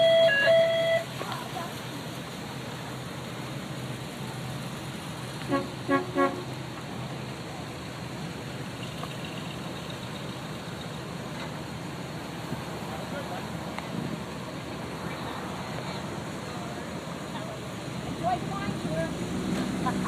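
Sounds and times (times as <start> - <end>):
car horn tooting: 0.0 - 1.1, 5.5 - 6.5.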